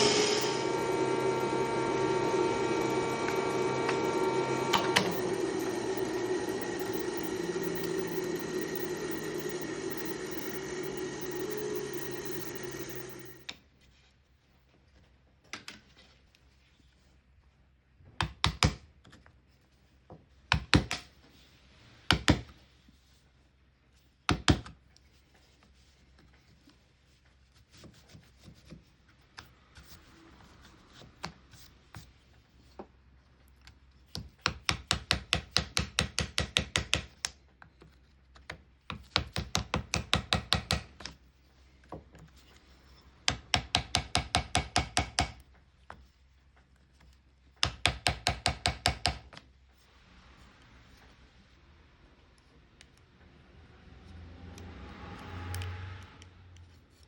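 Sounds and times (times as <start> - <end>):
hammer striking chisel: 39.2 - 40.9, 43.3 - 45.4, 47.6 - 49.2.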